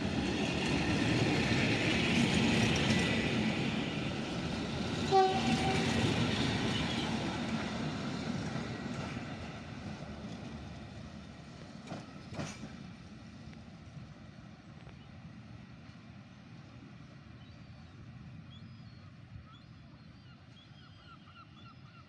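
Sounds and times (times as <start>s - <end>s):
train rolling noise: 0.0s - 19.5s
train horn toot: 5.1s - 7.2s.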